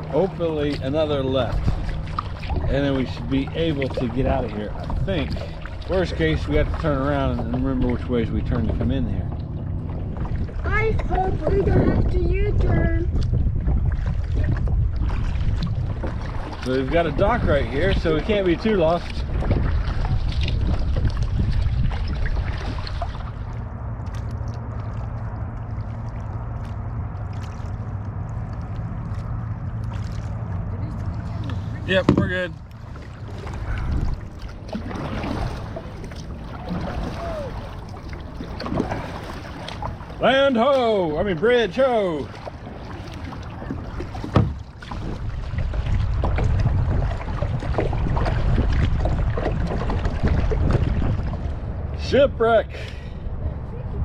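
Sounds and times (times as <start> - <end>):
paddle splashing water: 0.0 - 54.0
steady low rumble: 0.0 - 54.0
small knocks: 32.0 - 32.4.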